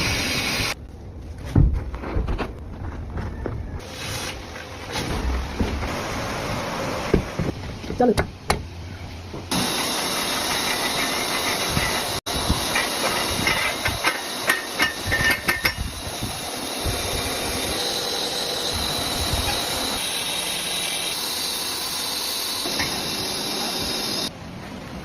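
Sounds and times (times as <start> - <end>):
welding arc crackling and hissing: 0.0 - 0.8, 9.5 - 24.3.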